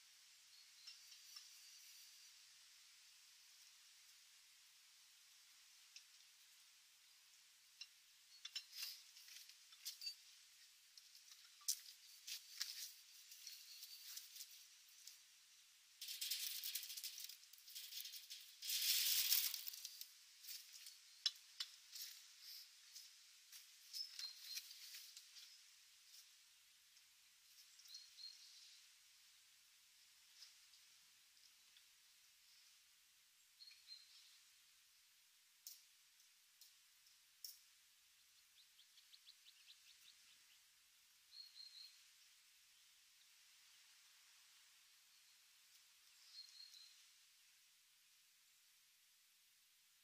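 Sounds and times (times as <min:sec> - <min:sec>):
faint high bird chirps: 0:00.4 - 0:02.3, 0:11.3 - 0:15.1, 0:23.8 - 0:25.7, 0:27.5 - 0:28.9, 0:33.4 - 0:34.5, 0:37.5 - 0:43.9, 0:45.0 - 0:47.2
birds rustling and scratching: 0:00.7 - 0:02.4, 0:07.8 - 0:15.4, 0:16.0 - 0:28.8
finches chirping: 0:23.9 - 0:25.7, 0:38.2 - 0:40.7, 0:41.3 - 0:42.2, 0:46.0 - 0:47.1.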